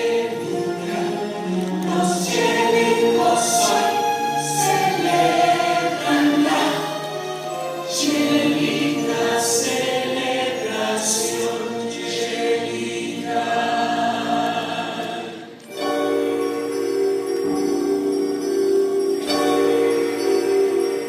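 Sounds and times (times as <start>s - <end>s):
ensemble singing in chorus: 0.0s - 16.0s
music: 0.0s - 21.0s.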